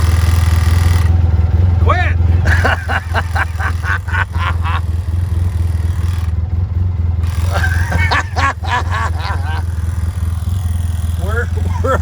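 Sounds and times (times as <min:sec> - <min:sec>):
atv engine idling: 0:00.0 - 0:12.0
indistinct voices: 0:01.8 - 0:04.9, 0:07.4 - 0:10.1.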